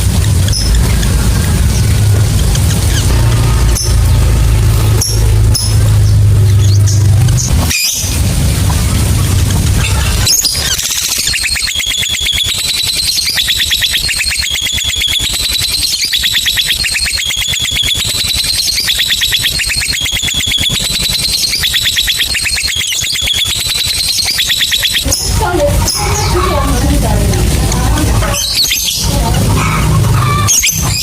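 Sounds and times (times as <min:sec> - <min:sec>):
lovebird chattering: 0:00.0 - 0:31.0.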